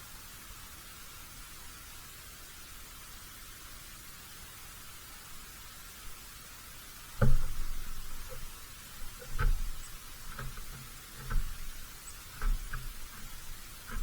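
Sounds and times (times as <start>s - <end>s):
knocks and thumps on bird feeder: 7.2s - 14.0s.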